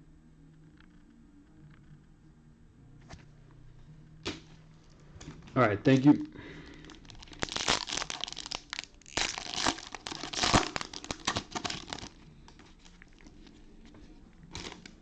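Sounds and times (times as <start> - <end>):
plastic wrapper crinkling: 6.5 - 15.0.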